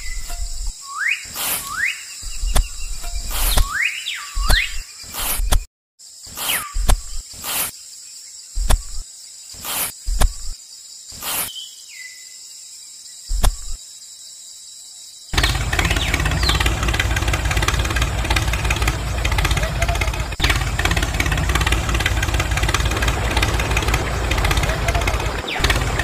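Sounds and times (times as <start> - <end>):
motor running with low pulsing: 15.4 - 26.0.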